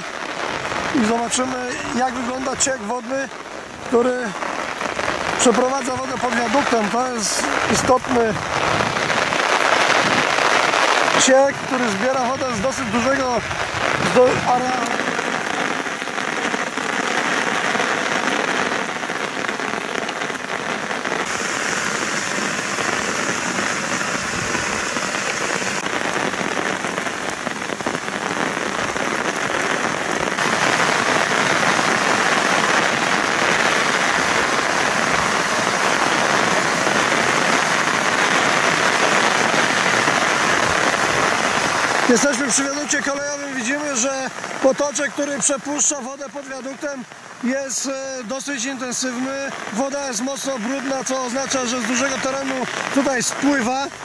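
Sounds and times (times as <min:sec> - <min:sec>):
heavy rain on pavement: 0:00.0 - 0:54.0.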